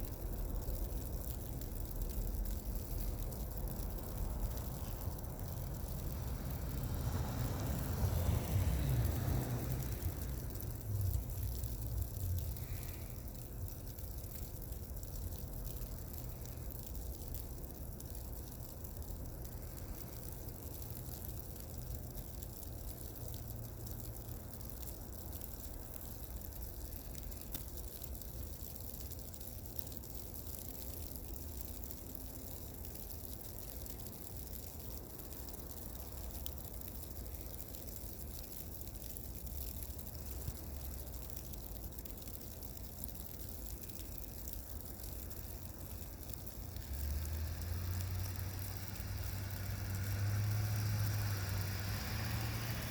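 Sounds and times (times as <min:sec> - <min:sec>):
low road rumble: 0:00.0 - 0:52.9
tyres swishing through slush: 0:03.8 - 0:11.1, 0:46.8 - 0:52.9.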